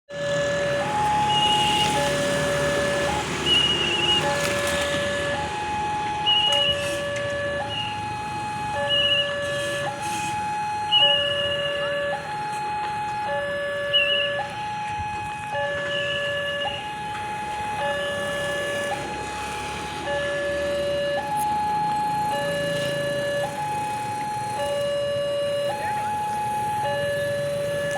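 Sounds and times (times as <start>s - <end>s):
two-tone warning alarm: 0.1s - 27.9s.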